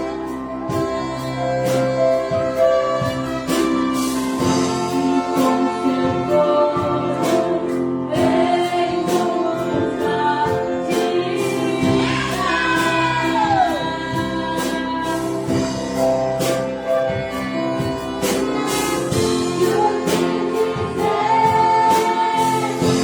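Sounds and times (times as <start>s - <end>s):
orchestra playing worship song: 0.0s - 23.0s.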